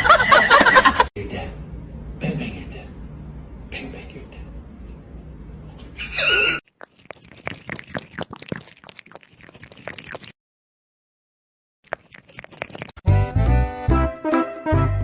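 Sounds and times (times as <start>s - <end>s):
pet chewing crunchily: 6.7s - 10.4s, 11.8s - 13.1s.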